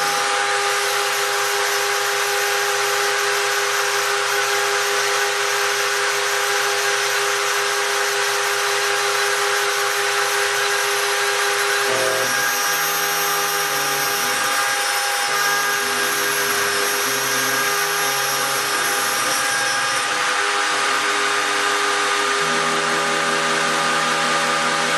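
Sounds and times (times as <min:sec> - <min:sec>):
motor tones changing pitch: 0:11.7 - 0:14.3.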